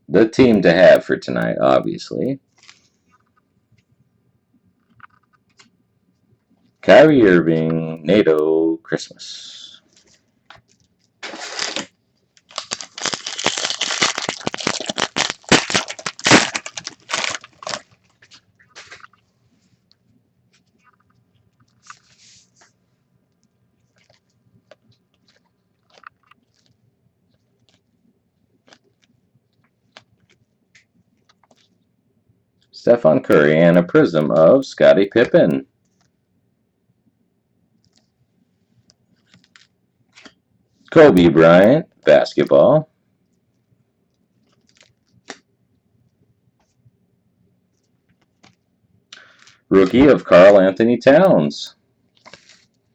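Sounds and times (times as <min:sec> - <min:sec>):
cards clicking and rustling: 0:10.0 - 0:19.2, 0:52.2 - 0:52.7.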